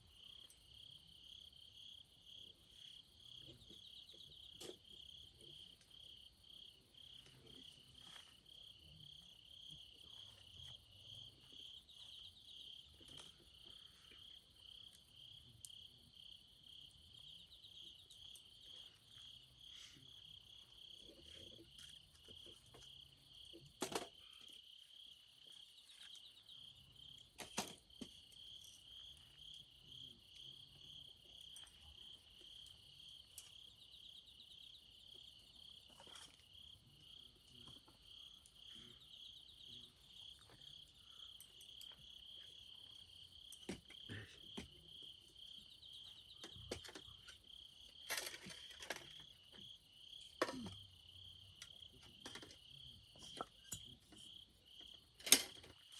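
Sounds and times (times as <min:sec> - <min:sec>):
crickets chirping: 0:00.0 - 0:55.9.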